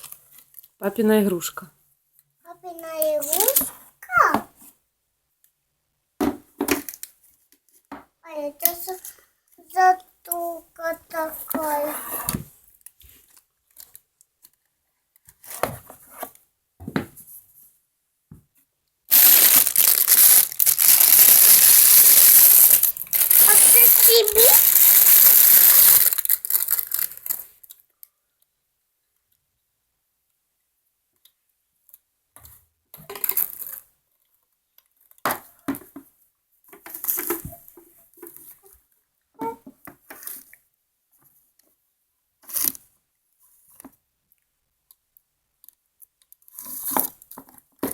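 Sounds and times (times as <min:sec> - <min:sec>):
packaging rustling: 0:19.1 - 0:27.5
packaging tearing and crinkling: 0:19.1 - 0:27.5.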